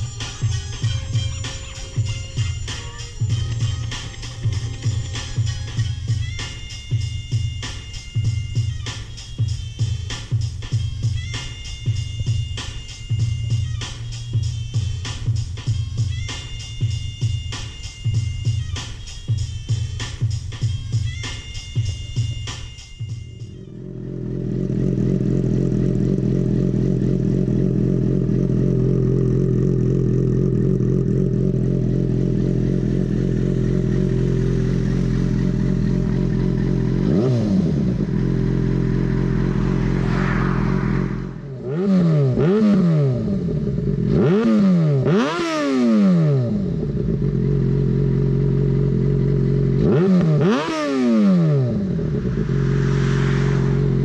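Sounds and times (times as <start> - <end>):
motorcycle engine idling: 0.0 - 39.6, 46.5 - 50.1
motorcycle engine revving: 23.4 - 54.0.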